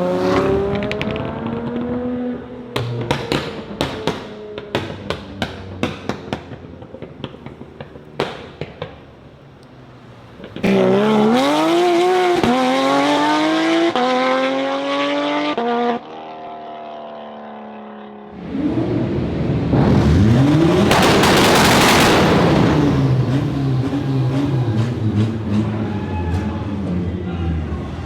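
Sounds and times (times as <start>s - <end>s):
noisy rush: 18.3s - 28.0s
car exhaust accelerating hard: 18.4s - 26.7s.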